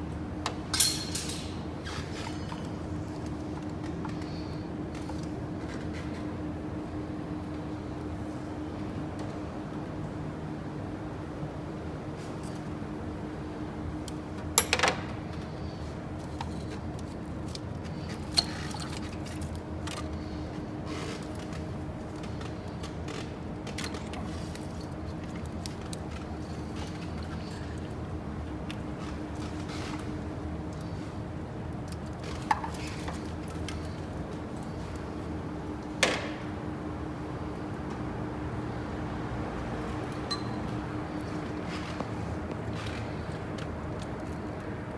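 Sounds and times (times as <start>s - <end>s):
metal tools clanking: 0.5s - 2.7s
metallic clinks of tools: 0.7s - 1.6s.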